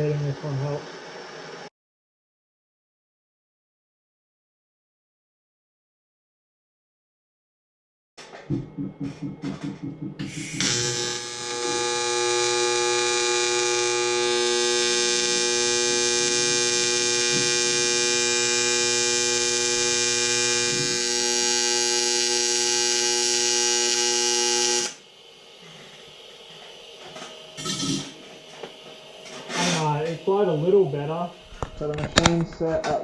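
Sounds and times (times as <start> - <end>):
welding arc buzzing: 10.2 - 32.3.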